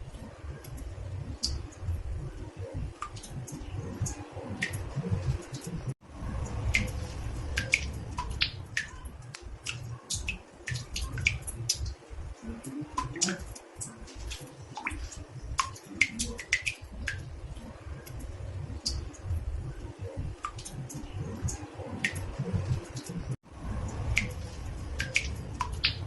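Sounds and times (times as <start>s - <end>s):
water drops dripping into bathtub: 0.6s - 26.0s
low steady rumble: 16.9s - 26.0s.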